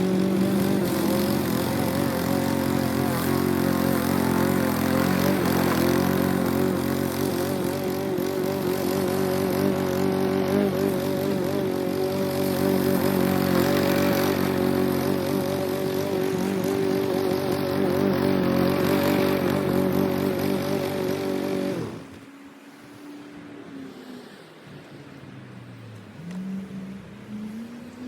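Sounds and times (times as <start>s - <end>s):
lawn mower engine running: 0.0s - 22.2s.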